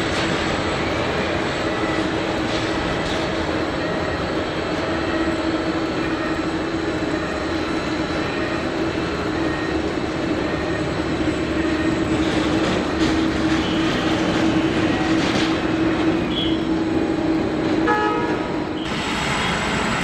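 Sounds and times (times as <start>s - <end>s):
jet engines running: 0.0s - 20.0s.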